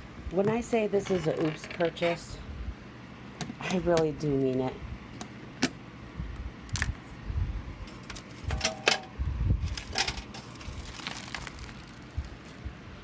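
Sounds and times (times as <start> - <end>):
rustling: 9.6 - 12.7.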